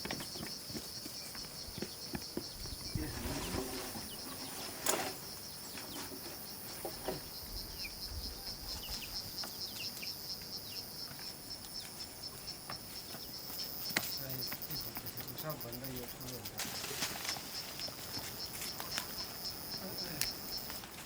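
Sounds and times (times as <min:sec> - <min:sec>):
high-pitched insect drone: 0:05.2 - 0:20.9
bird chirps: 0:05.3 - 0:20.8.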